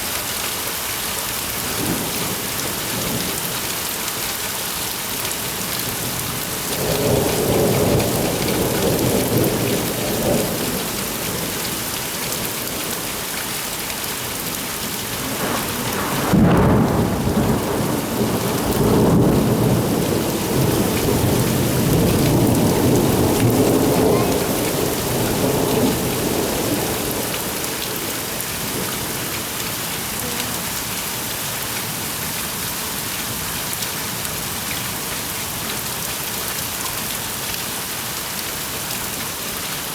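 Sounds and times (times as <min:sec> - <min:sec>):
heavy rain: 0:00.0 - 0:39.9
thunder rumbling: 0:14.3 - 0:29.9.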